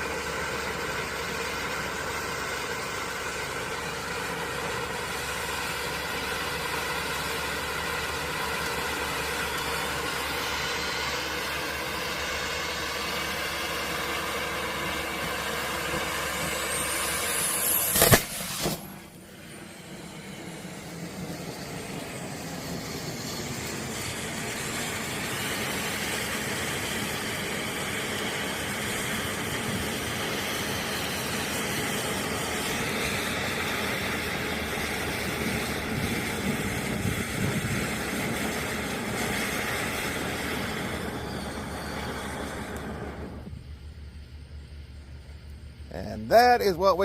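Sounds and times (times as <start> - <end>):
firework fountain hissing: 0.0 - 47.0.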